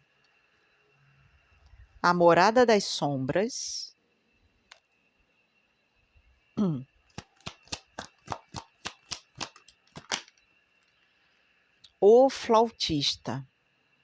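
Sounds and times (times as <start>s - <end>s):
person murmuring: 6.6s - 6.9s
cards shuffling clicks: 7.1s - 10.4s.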